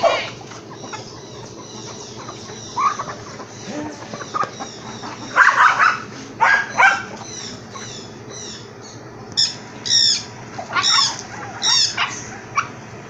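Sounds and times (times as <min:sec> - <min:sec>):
louder lower bird cries: 0:00.0 - 0:12.7
bird calling in high notes: 0:06.6 - 0:12.4.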